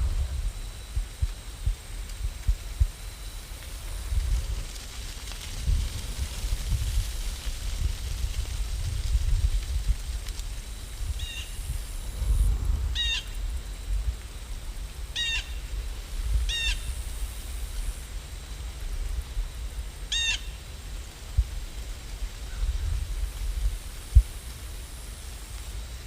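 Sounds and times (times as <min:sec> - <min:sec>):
steady low rumble: 0:00.0 - 0:20.1
bird calling: 0:15.2 - 0:15.6, 0:20.1 - 0:20.6.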